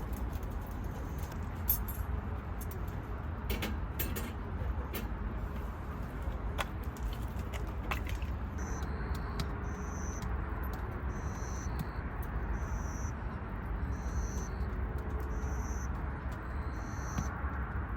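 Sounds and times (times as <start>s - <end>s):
outdoor ambience rumble and hiss: 0.0s - 17.9s
insect chirping: 8.6s - 10.2s, 11.0s - 14.7s, 15.3s - 17.3s.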